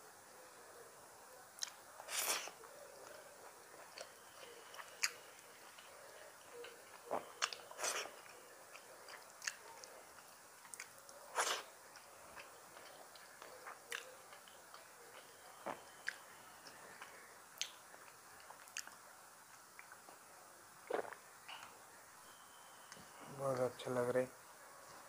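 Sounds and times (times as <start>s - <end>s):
lip smacks: 1.6s - 3.2s, 4.7s - 10.0s
person chewing food: 1.6s - 20.2s, 20.9s - 21.7s.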